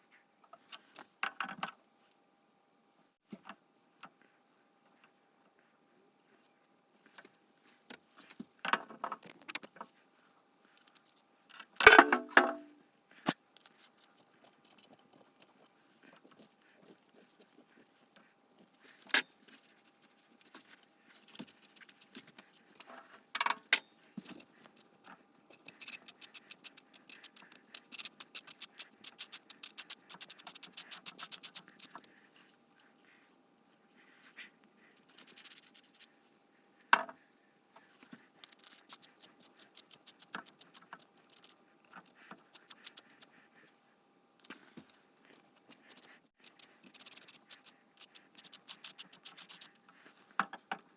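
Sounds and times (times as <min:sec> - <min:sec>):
rapid clicking: 0:24.6 - 0:32.1, 0:45.7 - 0:49.8
metal parts clinking and scraping: 0:25.5 - 0:32.0, 0:38.4 - 0:40.6.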